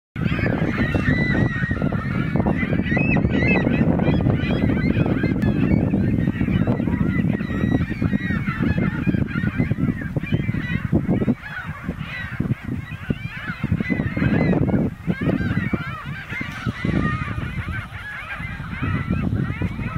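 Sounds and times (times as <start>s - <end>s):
geese honking: 0.2s - 19.9s.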